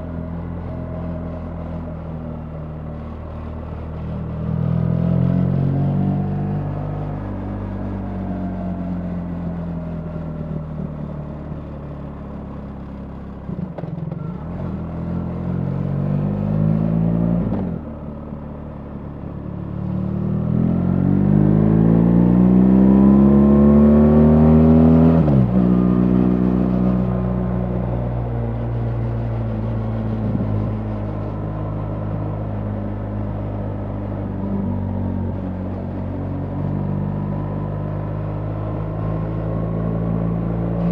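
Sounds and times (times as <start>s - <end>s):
motorcycle engine revving: 19.8s - 35.6s.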